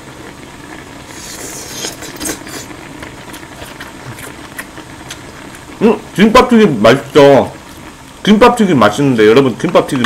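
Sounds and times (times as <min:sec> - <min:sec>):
pot bubbling: 0:00.0 - 0:10.0
close chewing with wet mouth sounds: 0:01.2 - 0:05.7.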